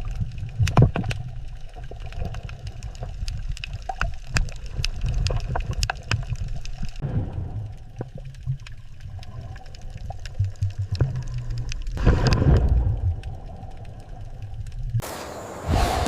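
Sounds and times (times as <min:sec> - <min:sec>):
underwater low rumble: 0:00.0 - 0:15.0
water noise: 0:00.0 - 0:16.0
bright hiss: 0:15.0 - 0:16.0.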